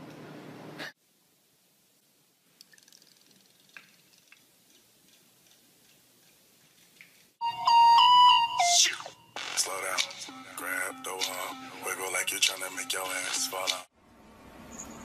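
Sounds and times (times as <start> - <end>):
light ticks and water at sink: 2.0 - 7.4
loud steady multi-pitch tone: 10.3 - 13.6.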